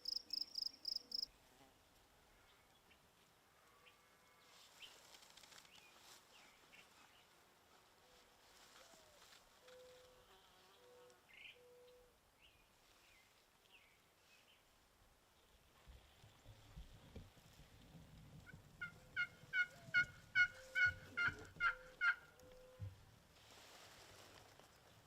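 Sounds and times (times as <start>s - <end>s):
insect chirps and buzzing: 0.0s - 1.3s.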